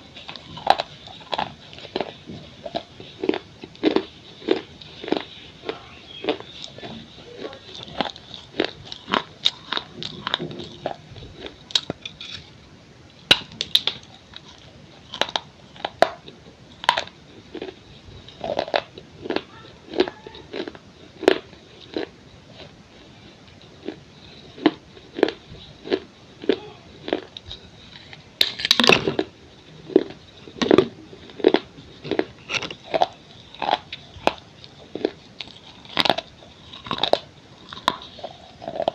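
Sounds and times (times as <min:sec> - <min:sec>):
person crunching clay: 0:28.0 - 0:38.9.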